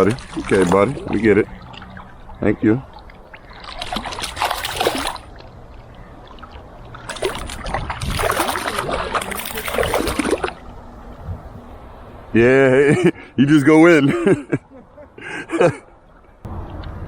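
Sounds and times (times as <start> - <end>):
water splashing: 0.0 - 12.2.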